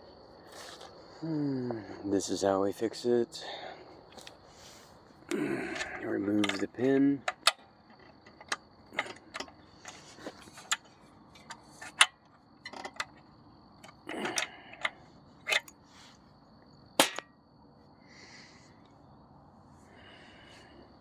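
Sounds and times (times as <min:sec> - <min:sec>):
metal clicks and knocks: 0:05.7 - 0:13.2, 0:13.8 - 0:15.7, 0:17.0 - 0:17.3.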